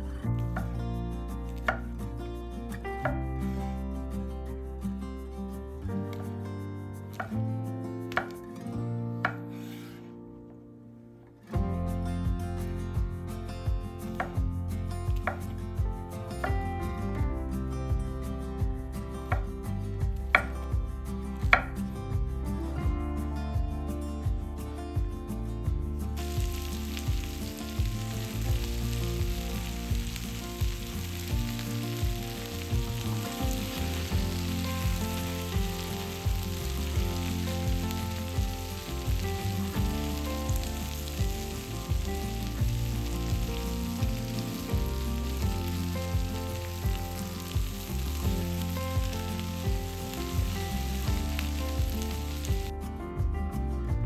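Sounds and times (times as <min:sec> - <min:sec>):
music with bass beat: 0:00.0 - 0:08.6, 0:11.6 - 0:54.0
food sizzling in a pan: 0:26.2 - 0:52.7.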